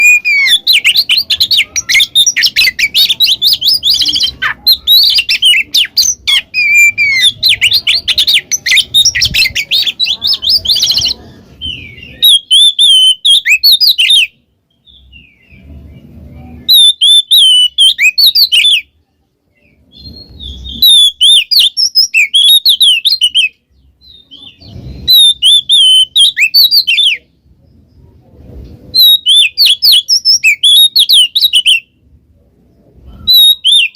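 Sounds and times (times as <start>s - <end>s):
magpie-robin singing: 0.0s - 28.0s, 28.9s - 32.0s, 32.8s - 33.9s.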